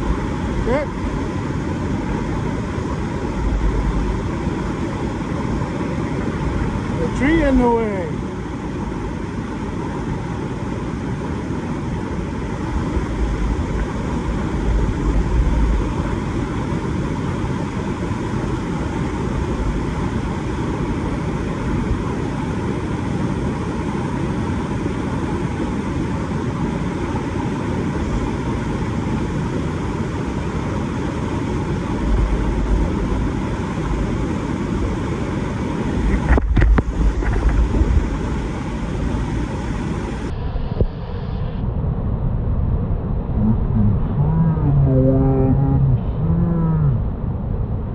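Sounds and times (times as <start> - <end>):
creek water rushing: 0.0 - 40.3
wind buffeting microphone: 27.7 - 41.2.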